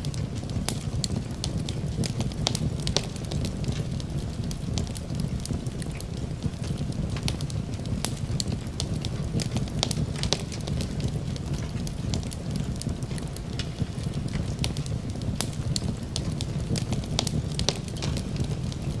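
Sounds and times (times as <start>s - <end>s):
fire crackling and popping: 0.0s - 19.0s
steady rain: 0.0s - 19.0s.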